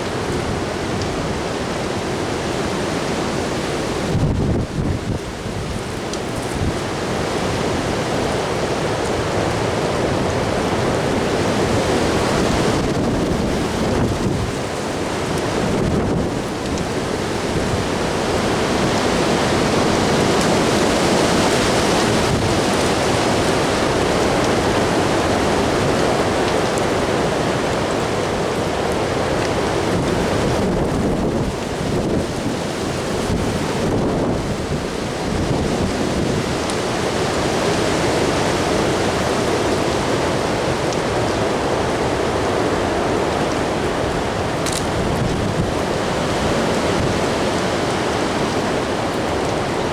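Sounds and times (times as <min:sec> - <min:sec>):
gusty wind buffeting microphone: 0:03.7 - 0:08.1, 0:10.1 - 0:26.4, 0:29.2 - 0:36.7, 0:41.7 - 0:49.9.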